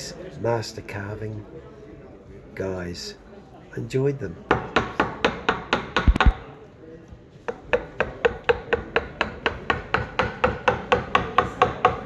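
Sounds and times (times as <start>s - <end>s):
mallet striking chisel into wood: 4.5s - 6.5s, 7.5s - 12.0s.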